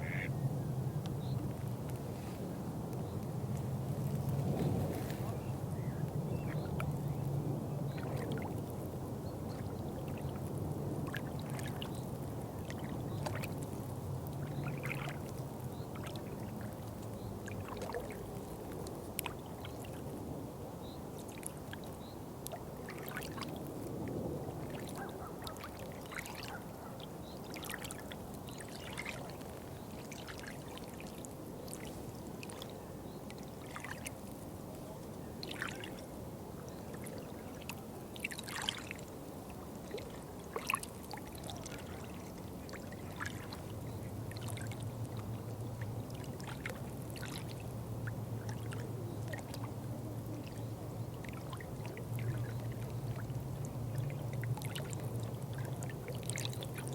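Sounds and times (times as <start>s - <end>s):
water trickling and splashing: 3.0s - 56.9s
low steady hum: 28.3s - 56.9s.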